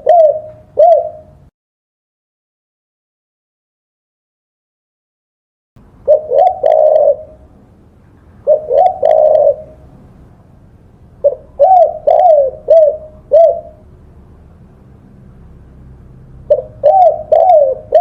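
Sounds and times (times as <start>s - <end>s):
dove cooing: 0.0s - 1.5s, 6.1s - 7.5s, 8.4s - 10.0s, 11.2s - 13.9s, 16.4s - 18.0s.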